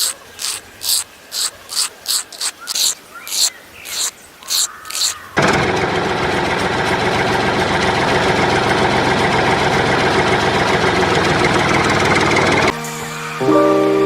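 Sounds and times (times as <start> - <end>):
small electric motor buzzing: 0.0 - 5.2.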